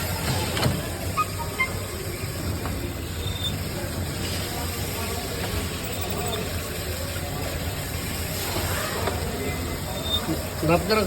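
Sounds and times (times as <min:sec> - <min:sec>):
faint gearbox squeaks: 0:01.0 - 0:02.0, 0:03.0 - 0:03.8, 0:05.7 - 0:06.6, 0:09.8 - 0:10.4.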